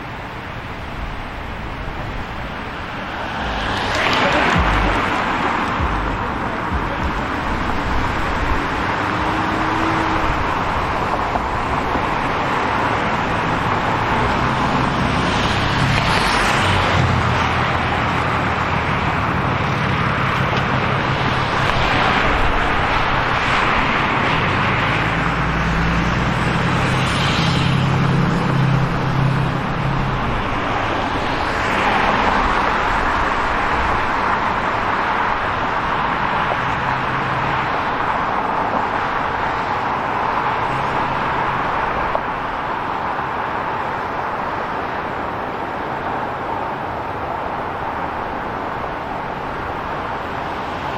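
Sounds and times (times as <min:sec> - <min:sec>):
cars passing: 0:00.0 - 0:50.9
road noise hum: 0:00.0 - 0:50.9
low engine hum: 0:01.4 - 0:15.2.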